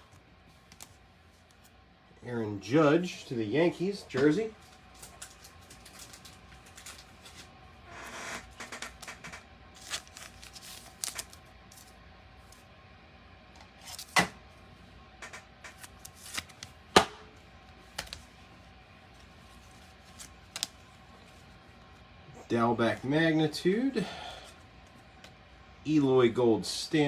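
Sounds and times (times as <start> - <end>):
wrapper rustling: 4.7 - 7.5, 9.0 - 12.0, 15.7 - 16.8, 19.0 - 21.6.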